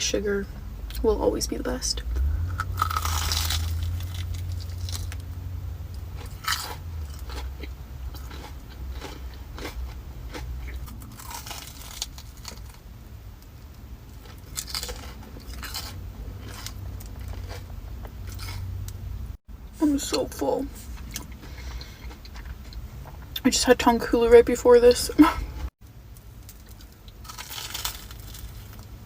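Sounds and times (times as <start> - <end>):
crunchy fried food chewing: 2.5 - 5.3, 5.9 - 12.8, 14.1 - 18.6, 20.8 - 23.3, 26.1 - 28.9.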